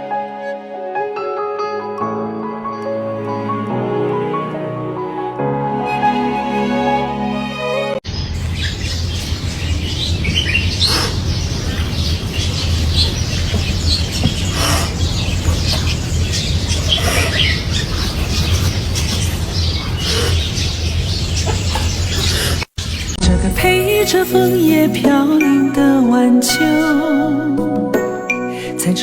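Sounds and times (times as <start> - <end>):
birds chirping: 8.0 - 23.3.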